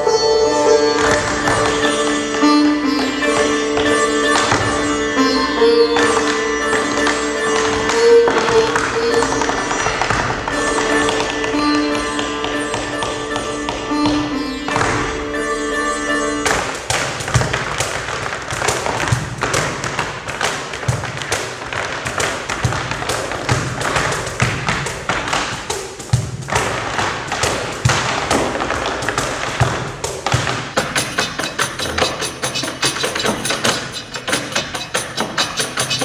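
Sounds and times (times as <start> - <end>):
tap shoes on stage floor: 0.7 - 4.9, 5.8 - 15.2, 16.4 - 36.0
low drum beats: 16.4 - 36.0.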